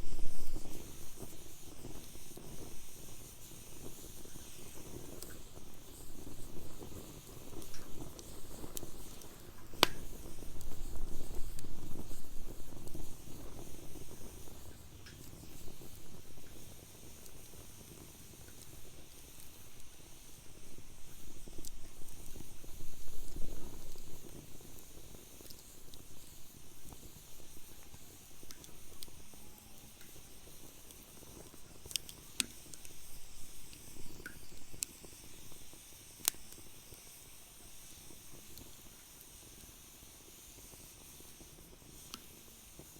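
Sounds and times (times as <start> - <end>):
sharp pop of fire: 0.0 - 19.9
fire popping: 0.0 - 42.9
rushing of flames: 0.0 - 42.9
wood fire crackling: 0.0 - 42.9.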